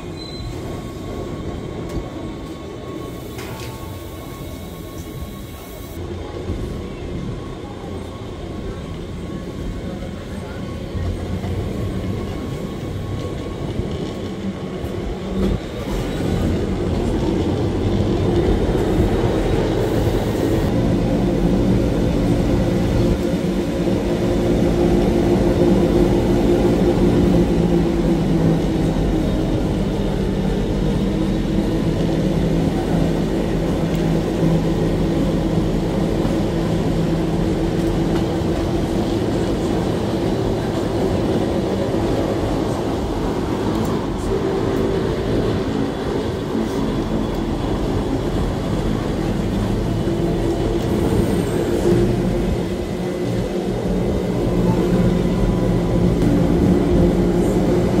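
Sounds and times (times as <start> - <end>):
train rumbling with hum: 0.0 - 58.0.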